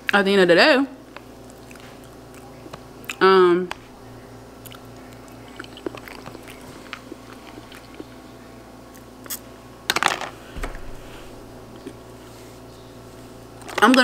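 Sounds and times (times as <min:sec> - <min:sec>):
steady low hum: 0:00.0 - 0:14.0
person chewing food: 0:01.2 - 0:03.9, 0:04.6 - 0:09.5.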